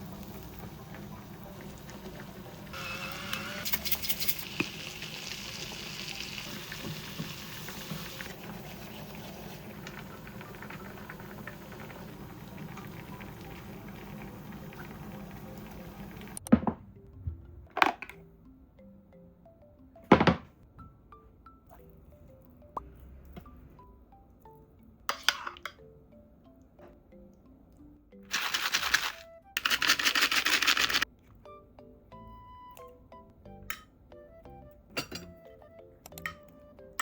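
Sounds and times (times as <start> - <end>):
kitchen background noise: 0.0 - 16.8, 25.1 - 25.8, 28.3 - 31.3, 34.9 - 35.4.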